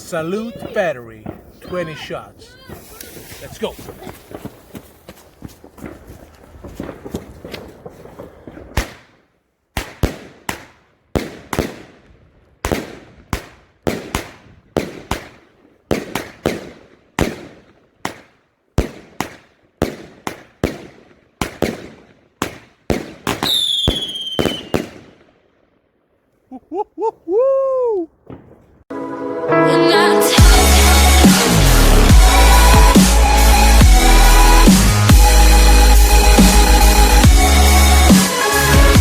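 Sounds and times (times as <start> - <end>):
fireworks loud bangs: 0.5 - 4.8, 5.6 - 9.1, 18.8 - 25.2
hiss with faint crackling: 2.8 - 4.4.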